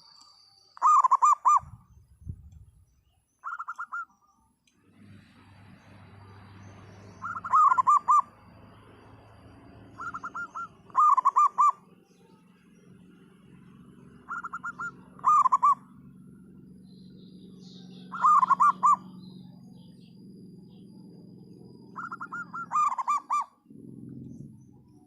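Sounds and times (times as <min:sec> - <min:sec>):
faint low hum: 0:00.0 - 0:25.0
dove cooing song: 0:00.8 - 0:01.8, 0:03.4 - 0:04.2, 0:07.2 - 0:25.0.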